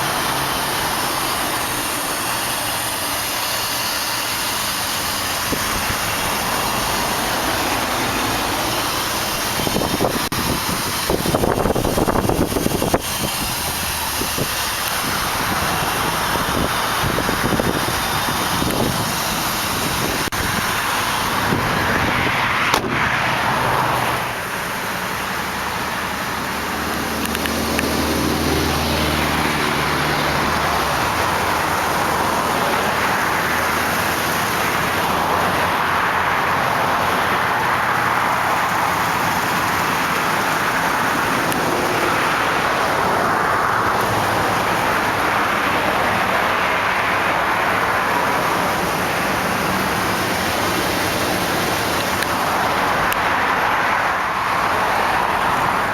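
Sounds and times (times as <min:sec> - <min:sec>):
car engine idling: 0:00.0 - 0:55.9
highway traffic rushing: 0:00.0 - 0:55.9
sharp click: 0:22.7 - 0:23.0.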